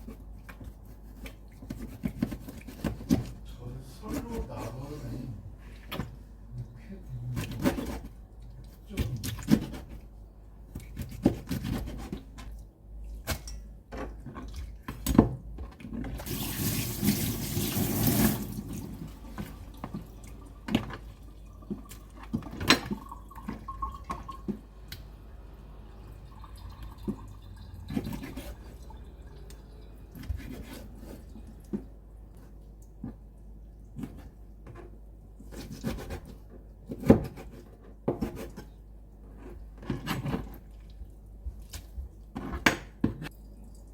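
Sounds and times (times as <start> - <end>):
kitchen tap running: 16.2 - 24.6, 25.7 - 29.9.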